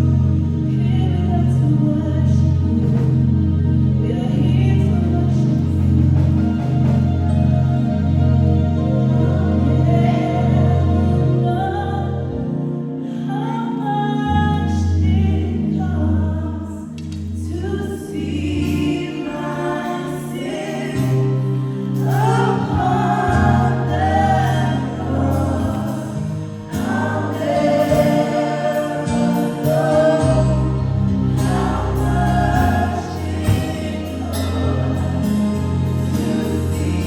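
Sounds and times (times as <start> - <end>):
band bass and chords: 0.0 - 13.0, 16.8 - 37.0
gospel choir singing: 0.0 - 16.8, 17.4 - 37.0.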